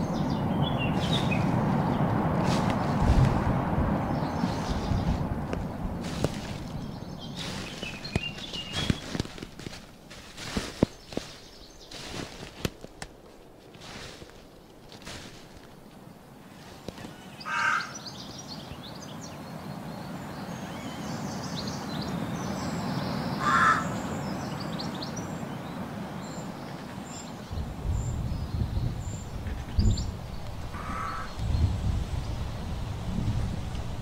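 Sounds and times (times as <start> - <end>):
bird calling: 0.0 - 3.0, 4.0 - 12.6, 16.4 - 19.4, 20.4 - 31.6
low rumbling wind gusts: 0.0 - 34.0.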